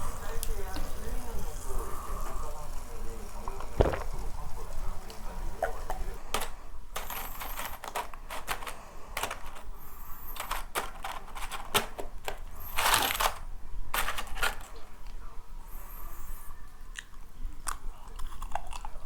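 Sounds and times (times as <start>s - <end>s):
packaging rustling: 3.8s - 4.2s, 6.3s - 15.2s
packaging clicks and taps: 5.6s - 14.9s.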